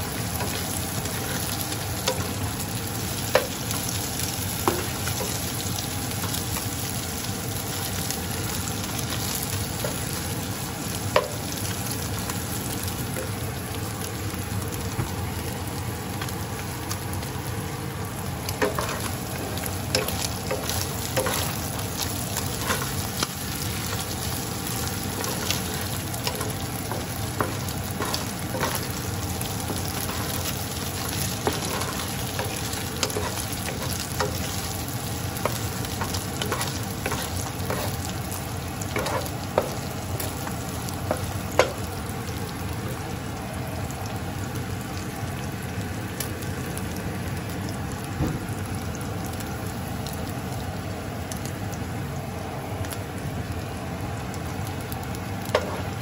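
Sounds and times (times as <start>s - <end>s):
garlic and onion sizzling in oil: 0.0s - 56.0s
spatula tapping pan: 18.6s - 19.1s, 20.0s - 29.0s, 29.6s - 34.6s, 41.1s - 41.8s.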